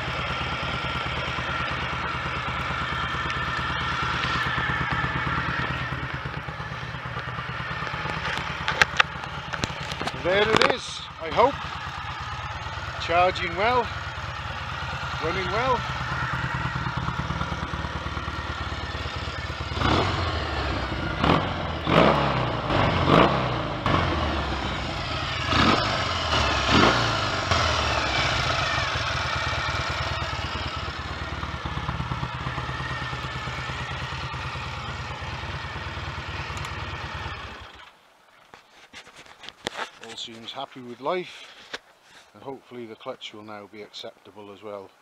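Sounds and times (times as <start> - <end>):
motorcycle engine idling and blipped: 0.0 - 40.6.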